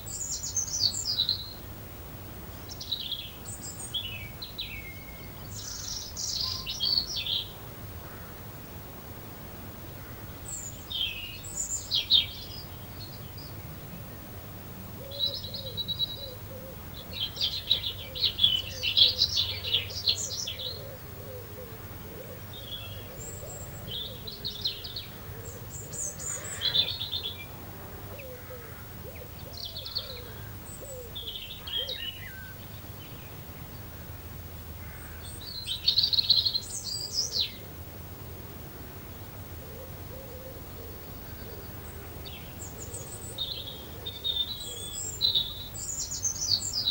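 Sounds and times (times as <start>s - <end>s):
songbirds singing and chirping: 0.0s - 46.9s.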